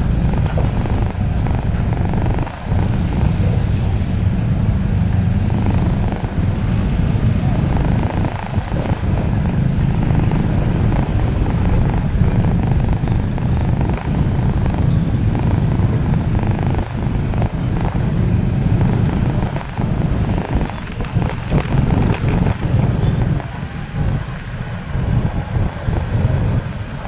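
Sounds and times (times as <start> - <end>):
road noise: 0.0 - 27.0
vehicle engine rumble: 0.0 - 27.0.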